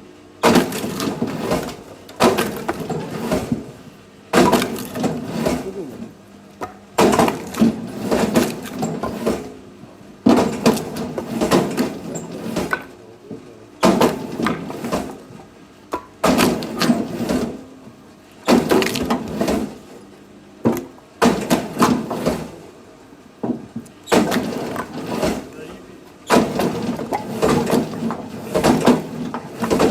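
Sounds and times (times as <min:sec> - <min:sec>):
firewood splitting crack: 0:00.4 - 0:03.7, 0:06.6 - 0:09.4, 0:18.4 - 0:19.8, 0:24.0 - 0:29.9
wood splintering: 0:04.4 - 0:09.4, 0:18.4 - 0:19.8, 0:24.1 - 0:29.9.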